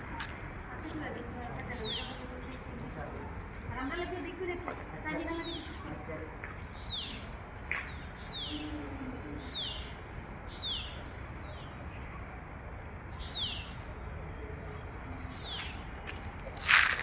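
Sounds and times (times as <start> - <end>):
bird chirping: 6.8 - 11.8, 13.1 - 14.2.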